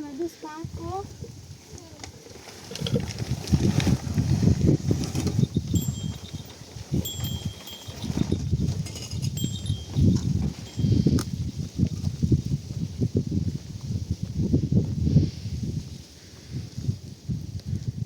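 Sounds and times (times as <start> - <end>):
wind rumble on microphone: 0.5 - 18.0
high bell-like chimes: 5.5 - 11.2.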